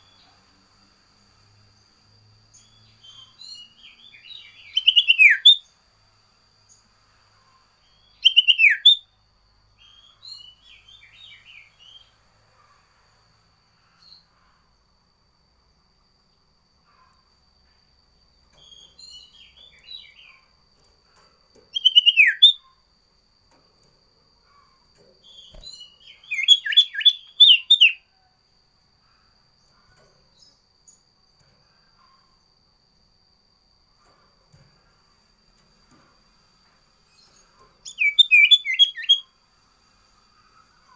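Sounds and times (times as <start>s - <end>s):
faint high-pitched whine: 0.0s - 40.9s
bird soft twittering: 21.7s - 22.7s, 24.5s - 28.0s, 37.2s - 39.3s
songbird sharp whistled notes: 21.7s - 22.7s, 25.3s - 28.0s, 37.2s - 39.3s.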